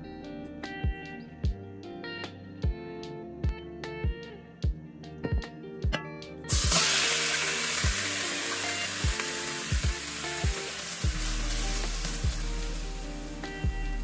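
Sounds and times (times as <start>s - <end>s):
food sizzling in hot oil: 6.5s - 14.0s.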